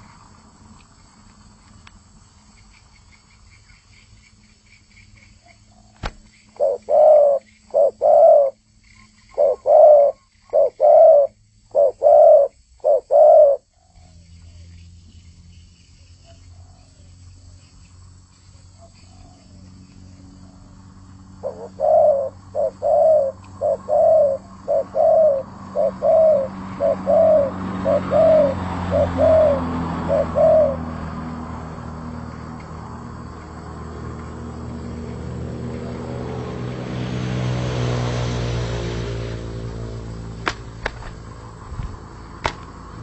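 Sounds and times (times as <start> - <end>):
dove cooing: 5.7 - 8.6, 9.3 - 14.2, 21.3 - 31.0.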